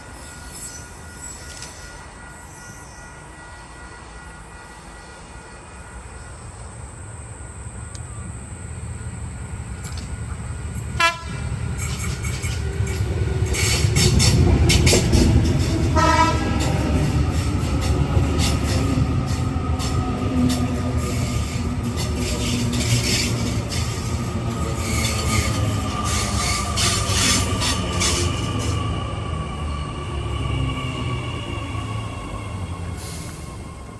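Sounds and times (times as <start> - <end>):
train rumbling past: 0.0 - 33.9
wheels clicking over rail joints: 7.8 - 29.6
train horn blasts: 10.9 - 11.9, 15.0 - 17.5.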